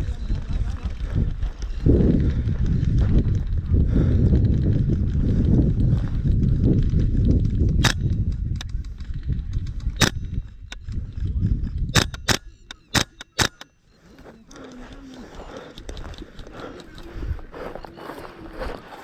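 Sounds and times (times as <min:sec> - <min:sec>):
rustling movement noise: 0:01.0 - 0:19.0
airsoft gun shots: 0:07.8 - 0:08.7, 0:10.0 - 0:10.8, 0:12.0 - 0:13.7.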